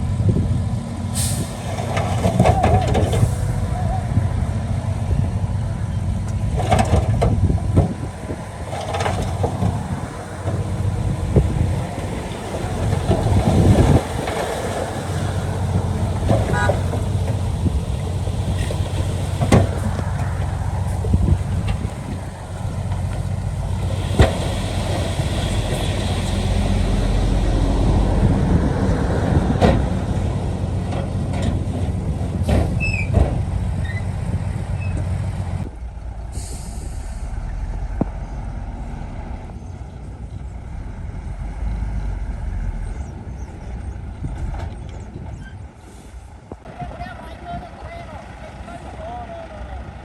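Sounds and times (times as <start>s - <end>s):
bulldozer diesel engine under load: 0.0s - 50.0s
brief hiss: 36.3s - 37.5s.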